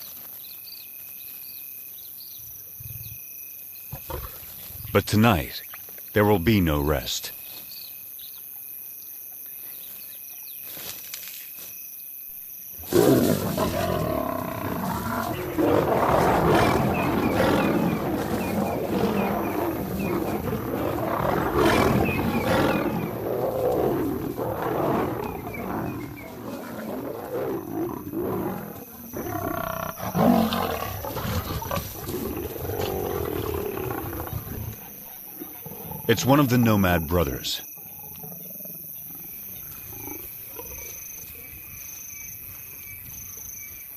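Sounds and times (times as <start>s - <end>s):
lions roaring: 12.8s - 40.8s.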